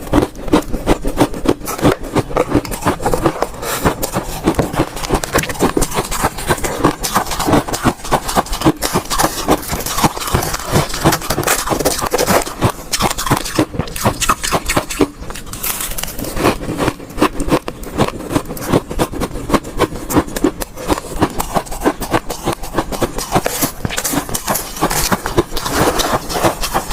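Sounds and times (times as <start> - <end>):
ice cubes crunching in mouth: 0.0 - 26.9.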